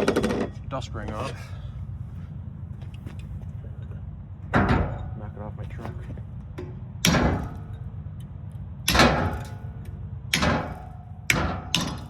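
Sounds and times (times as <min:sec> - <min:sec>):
hammer striking steel: 0:06.6 - 0:07.9, 0:08.9 - 0:12.0.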